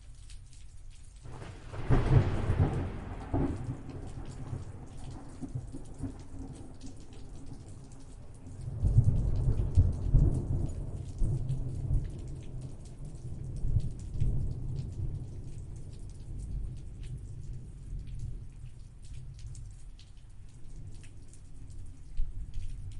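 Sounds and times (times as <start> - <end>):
steady rain: 0.0 - 22.9
thunder rumbling: 1.3 - 7.9.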